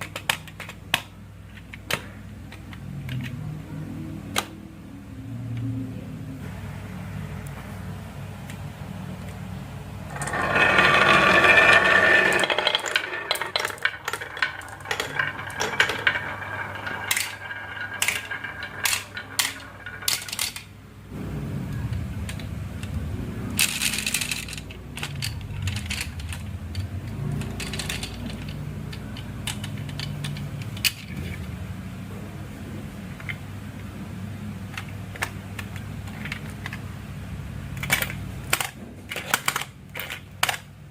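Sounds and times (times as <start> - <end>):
marbles clacking on wood: 10.1 - 20.8, 23.6 - 31.1
marbles rattling down wooden track: 10.1 - 20.8, 23.6 - 31.0.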